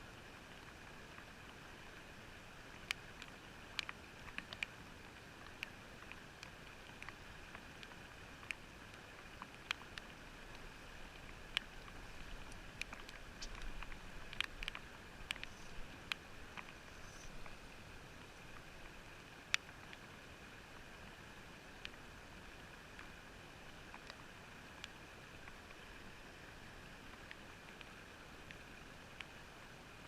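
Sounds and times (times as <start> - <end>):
faint steady hiss: 0.0 - 30.0
sharp underwater clicks: 2.7 - 20.2, 22.8 - 26.1.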